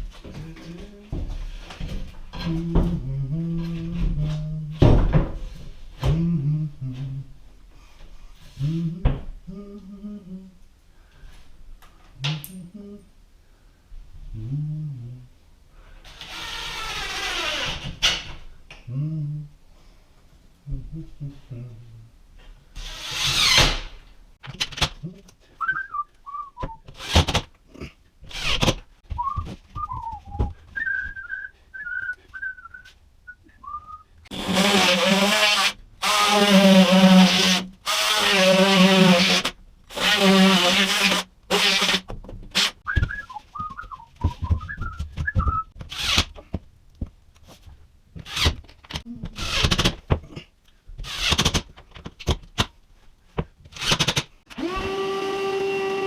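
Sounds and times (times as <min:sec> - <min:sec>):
person whistling a tune: 0:25.6 - 0:26.8, 0:29.2 - 0:34.1, 0:42.9 - 0:45.7
loud tool buzzing: 0:34.3 - 0:42.0
knocks and clatter: 0:42.1 - 0:47.2.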